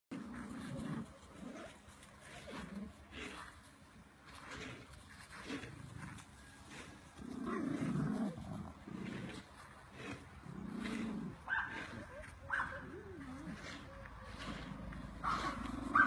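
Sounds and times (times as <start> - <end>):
dog making low wavering sounds: 10.7 - 16.0
dog yelp: 15.2 - 16.0.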